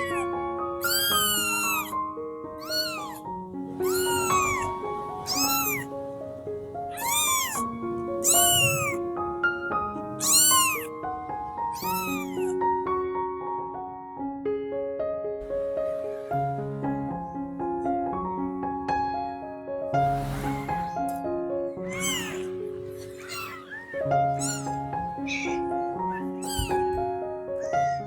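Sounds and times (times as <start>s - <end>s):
kittens meowing loudly: 0.0s - 2.0s, 2.6s - 5.9s, 6.8s - 9.0s, 9.8s - 12.6s, 21.8s - 28.0s.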